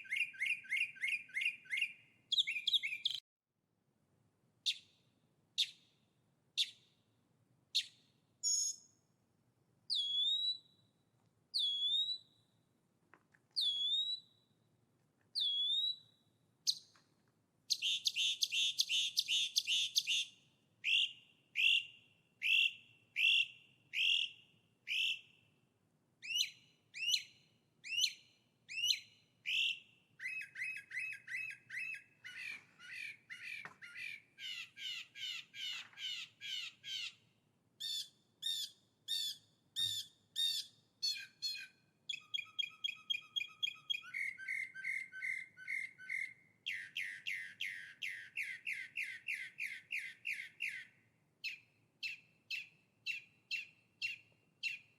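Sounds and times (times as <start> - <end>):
songbird singing: 0.0 - 3.2, 4.6 - 6.0, 6.6 - 7.1, 7.7 - 9.1, 9.9 - 12.6, 13.4 - 14.6, 15.3 - 25.6, 26.2 - 54.9.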